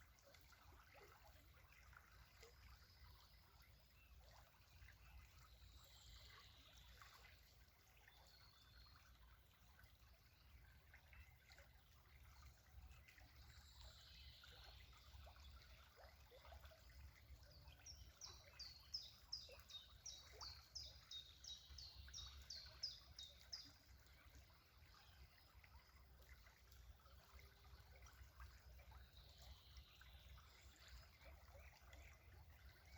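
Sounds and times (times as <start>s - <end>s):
faint trickling stream: 0.0s - 32.9s
songbird singing: 17.5s - 23.8s.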